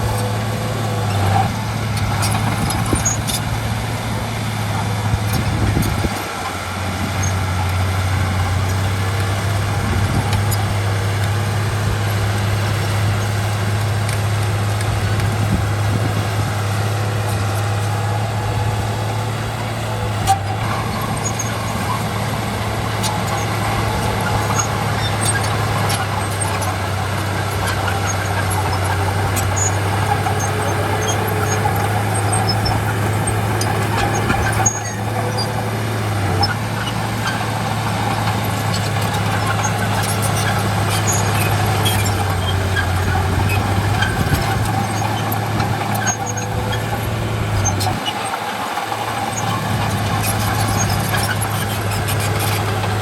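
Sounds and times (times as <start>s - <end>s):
diesel machinery humming: 0.0s - 53.0s.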